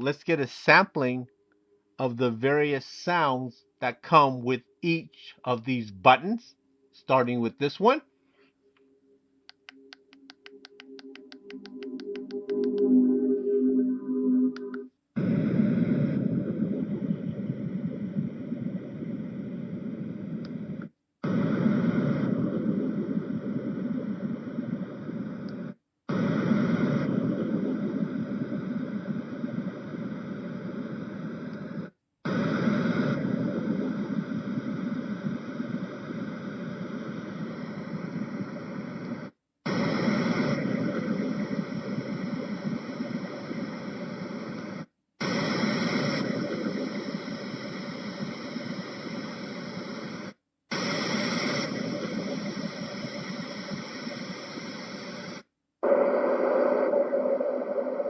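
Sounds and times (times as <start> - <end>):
white noise machine: 14.6 - 58.0.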